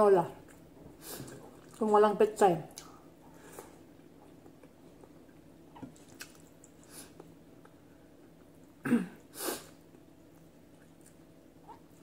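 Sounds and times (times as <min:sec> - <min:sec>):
person chewing food: 0:02.8 - 0:08.8, 0:09.8 - 0:12.0.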